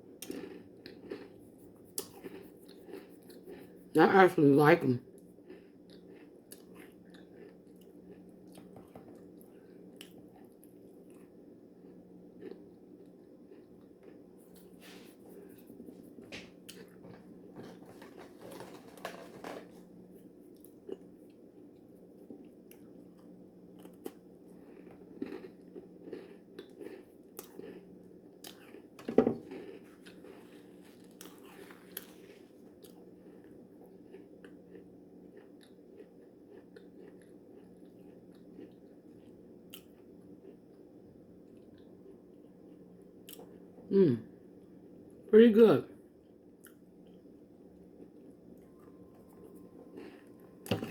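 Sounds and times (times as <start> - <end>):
person chewing cookie: 0.0 - 3.9, 5.1 - 43.9, 46.2 - 50.9
low hum: 47.0 - 50.9.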